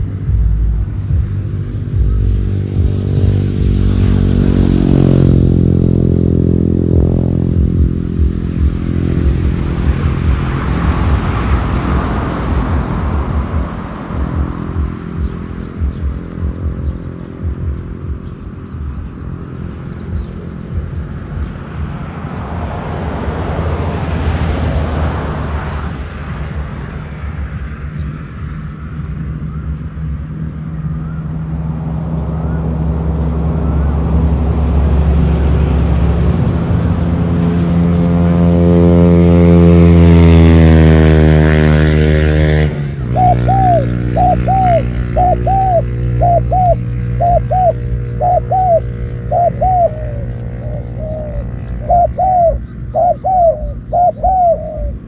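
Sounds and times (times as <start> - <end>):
low steady hum: 0.0 - 22.2
motor engine running: 0.0 - 23.3, 26.0 - 55.0
dove cooing: 43.0 - 55.0.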